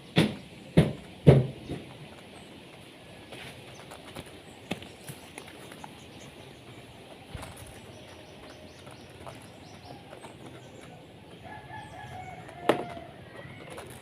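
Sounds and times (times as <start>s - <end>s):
faint chicken calls: 5.6s - 14.0s.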